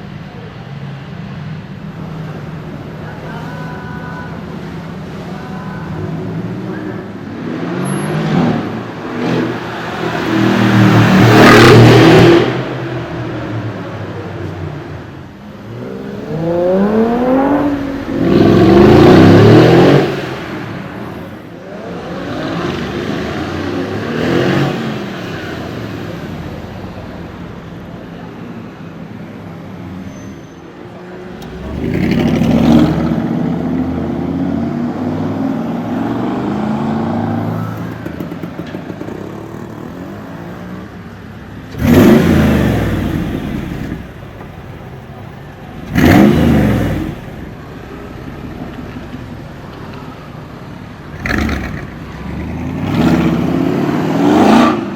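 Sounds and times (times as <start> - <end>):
engines accelerating hard: 7.2 - 14.2, 15.5 - 27.8, 31.2 - 54.9.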